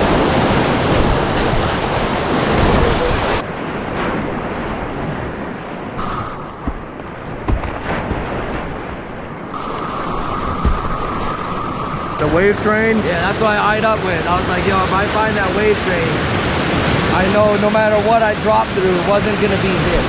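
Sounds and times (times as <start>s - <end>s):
wind buffeting microphone: 0.0s - 17.5s
whitewater roaring: 0.0s - 20.0s
low thumps: 6.0s - 12.2s.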